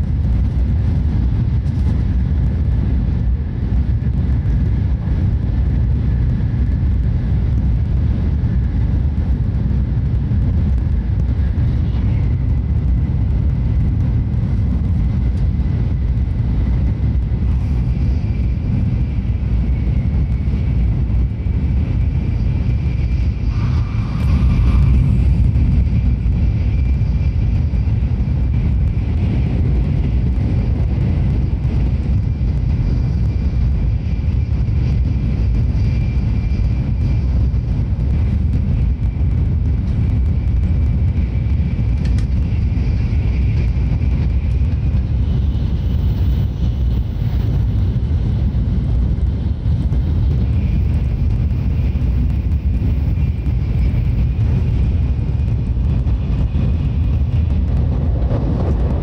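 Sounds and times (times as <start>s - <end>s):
train cabin rumble: 0.0s - 59.0s
faint high whine: 16.3s - 59.0s.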